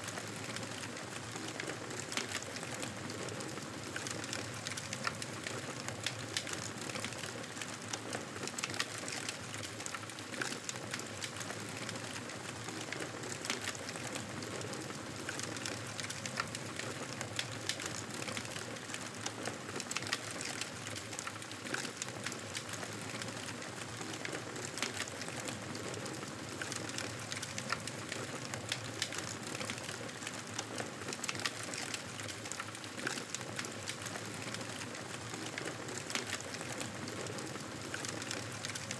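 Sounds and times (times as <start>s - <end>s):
campfire crackling and popping: 8.6s - 19.0s, 19.8s - 38.9s.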